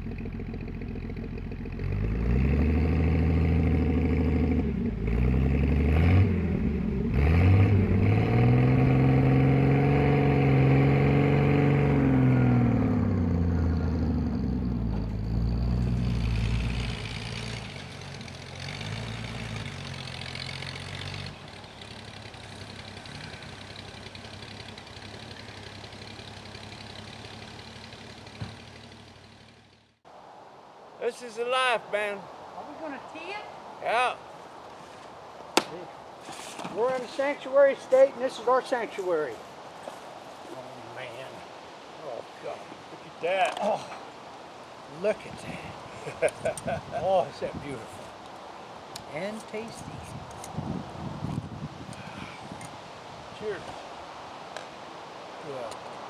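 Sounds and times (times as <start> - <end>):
truck engine revving: 0.0 - 30.0.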